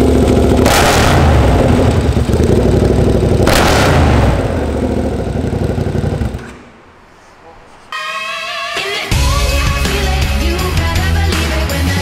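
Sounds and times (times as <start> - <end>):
motorcycle engine running loud: 0.0 - 6.4.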